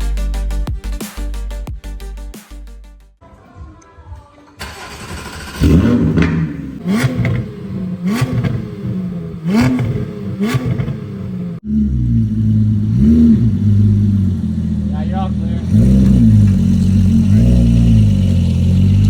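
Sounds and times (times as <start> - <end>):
car engine revving: 4.6 - 19.0.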